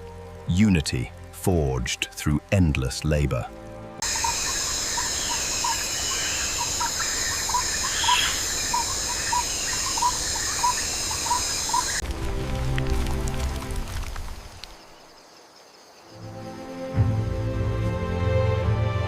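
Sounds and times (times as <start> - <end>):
high-pitched insect drone: 4.0 - 12.0.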